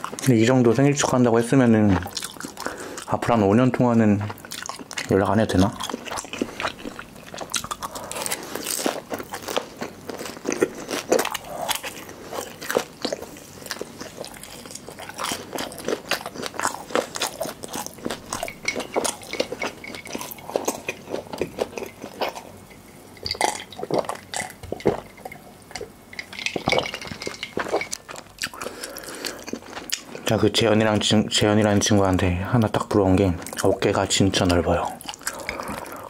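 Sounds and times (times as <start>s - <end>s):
crunching and chewing fried food: 0.0s - 1.2s, 1.8s - 3.4s, 4.1s - 30.4s, 32.7s - 36.0s
gulping a drink: 34.7s - 36.0s.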